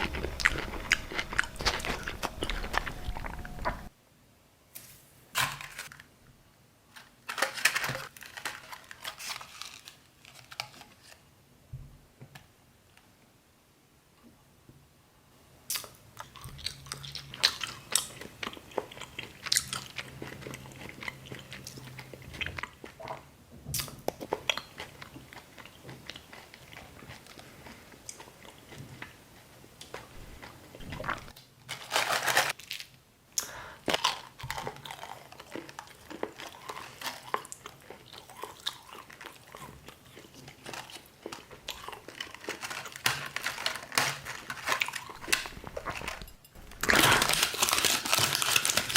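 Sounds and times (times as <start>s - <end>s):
crunchy mouth noises: 0.0s - 3.9s, 29.8s - 31.4s, 44.2s - 48.9s
person biting and chewing: 0.0s - 3.9s, 29.9s - 31.4s, 33.8s - 48.9s
rustling: 40.3s - 48.9s.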